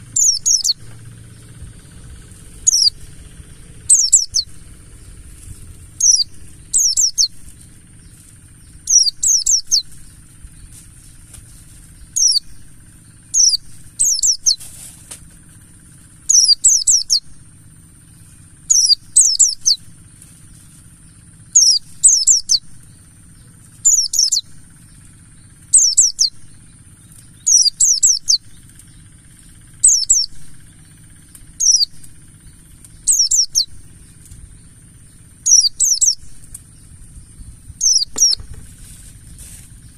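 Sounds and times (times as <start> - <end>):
bird high falling chirps: 0.0 - 10.3, 12.0 - 12.6, 13.3 - 14.6, 33.0 - 34.7, 35.4 - 36.4, 37.8 - 38.7.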